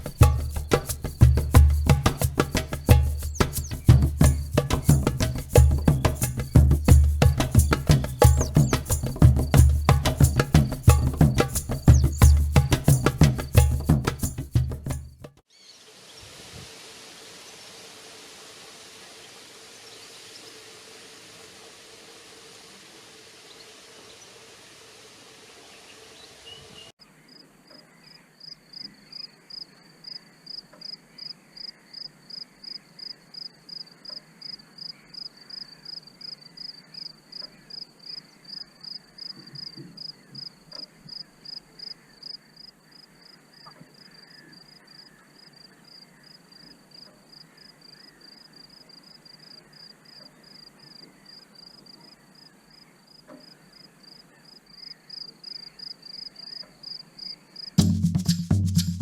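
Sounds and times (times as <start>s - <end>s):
outdoor hiss: 0.0s - 14.7s, 15.4s - 27.0s, 57.6s - 59.0s
insect chirping: 0.0s - 16.2s, 28.4s - 58.3s.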